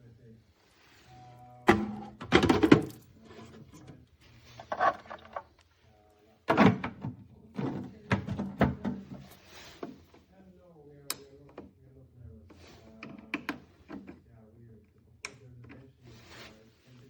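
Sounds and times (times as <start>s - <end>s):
objects knocking when set down: 1.7s - 3.1s, 4.6s - 5.6s.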